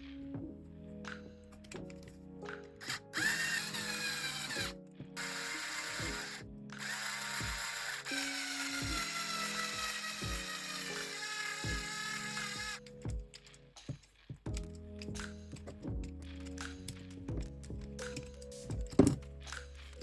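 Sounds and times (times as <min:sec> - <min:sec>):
background music with steady beat: 0:00.0 - 0:20.0
small electric motor whining: 0:02.8 - 0:12.8.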